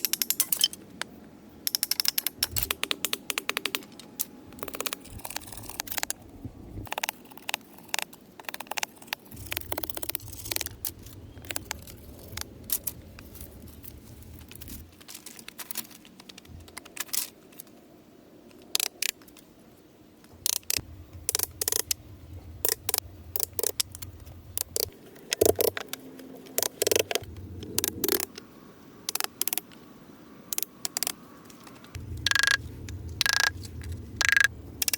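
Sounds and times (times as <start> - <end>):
small objects clicking and knocking: 22.6 - 28.4.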